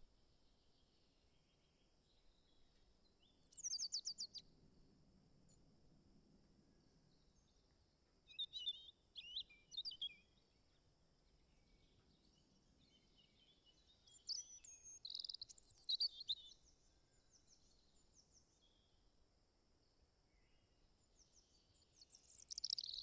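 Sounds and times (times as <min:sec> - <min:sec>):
faint songbird chirps: 0:00.0 - 0:23.0.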